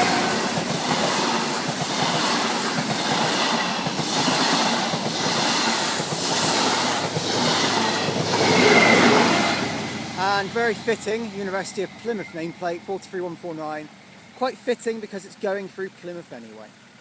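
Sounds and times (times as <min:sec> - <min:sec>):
train wheels clacking over rail joints: 0:00.0 - 0:13.0.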